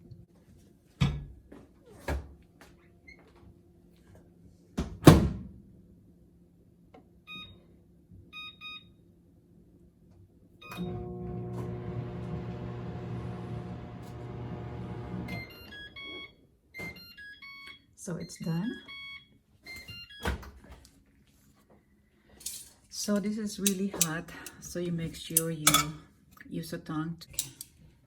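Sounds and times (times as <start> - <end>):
microwave oven humming: 10.6 - 16.1
keypad beeps: 15.4 - 20.3.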